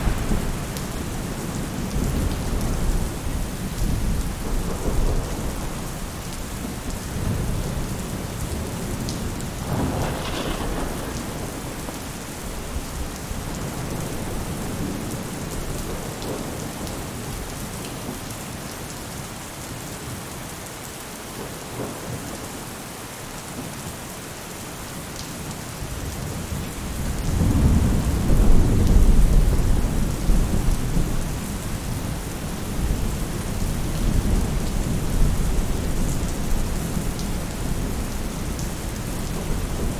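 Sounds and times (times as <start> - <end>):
thunder rumbling: 0.0 - 6.0, 7.1 - 16.9, 26.5 - 39.9
rain falling on a roof: 0.0 - 39.9.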